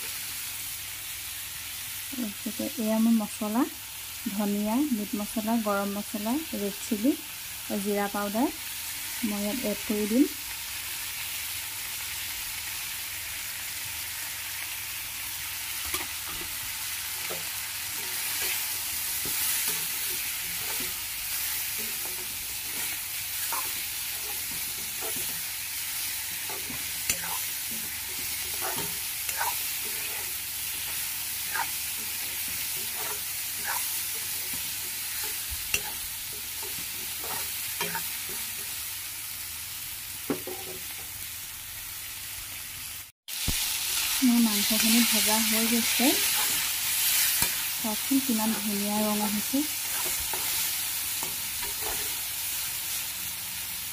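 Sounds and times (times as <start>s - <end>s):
meat and onions sizzling: 0.0s - 53.9s
utensil scraping and knocking pan: 21.8s - 25.4s, 26.3s - 38.7s.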